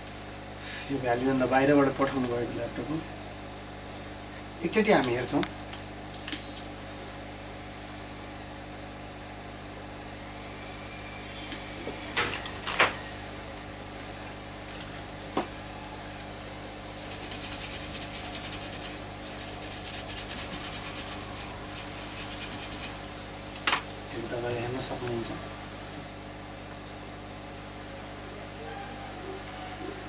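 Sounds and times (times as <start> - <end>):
electrical hum: 0.0 - 30.0
fine scratching or crackling: 17.0 - 23.0.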